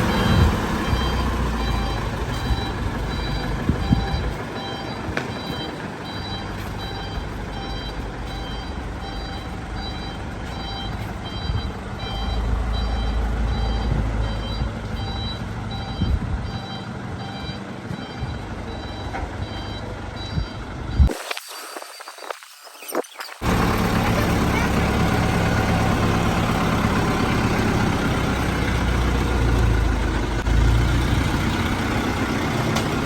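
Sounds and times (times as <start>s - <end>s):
engine rumbling: 0.0s - 21.1s, 23.4s - 33.0s
reversing alarm beeping: 0.0s - 21.8s.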